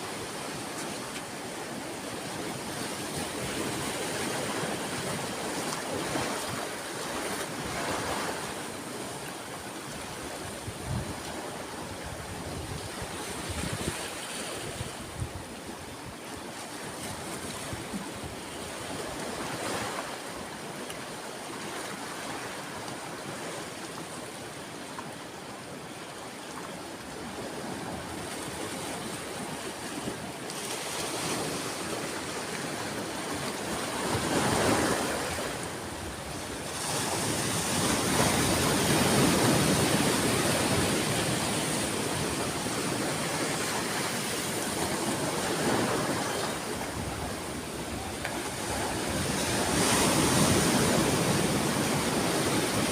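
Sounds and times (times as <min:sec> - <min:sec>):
ocean waves washing ashore: 0:00.0 - 0:52.9.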